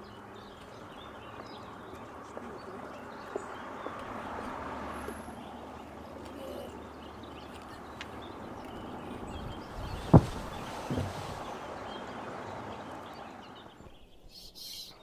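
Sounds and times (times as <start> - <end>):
rustling of brush and twigs: 8.6 - 13.2
heavy thump: 9.5 - 11.5.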